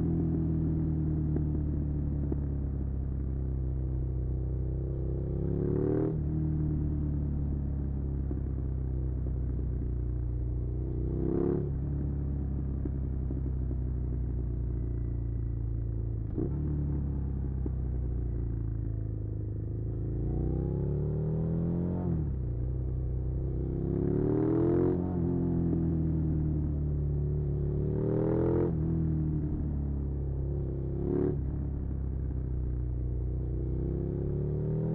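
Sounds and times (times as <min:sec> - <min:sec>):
motorcycle engine revving: 0:23.4 - 0:26.4, 0:27.4 - 0:29.6.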